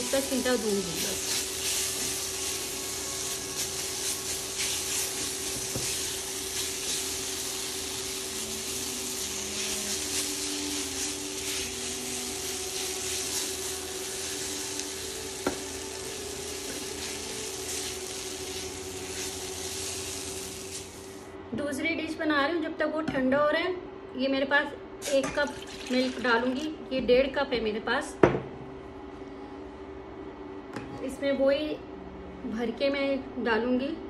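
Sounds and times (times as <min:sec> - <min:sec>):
food sizzling in a pan: 0:00.0 - 0:21.3
steady hum: 0:00.0 - 0:25.4, 0:26.0 - 0:34.0
spatula stirring and scraping: 0:03.4 - 0:07.4.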